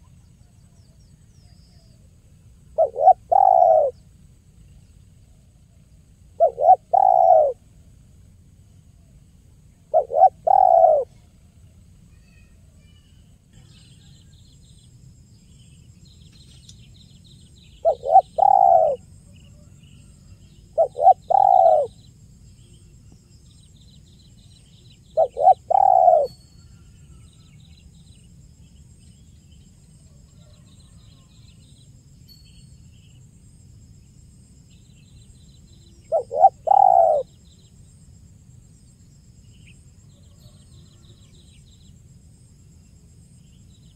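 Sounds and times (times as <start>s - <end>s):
faint high chirping: 0.0s - 43.9s
dove cooing: 2.8s - 4.0s, 6.4s - 7.6s, 9.9s - 11.2s, 17.8s - 19.7s, 20.7s - 22.0s, 25.2s - 26.3s, 36.0s - 37.3s.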